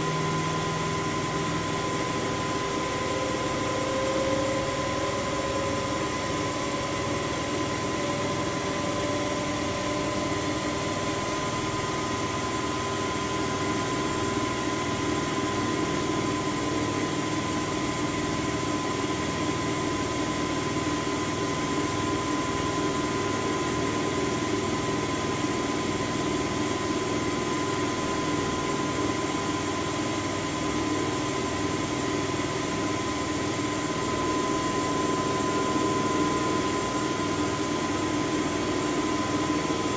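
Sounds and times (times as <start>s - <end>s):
steady high whine: 0.0s - 25.3s
washing machine hum: 0.0s - 39.9s.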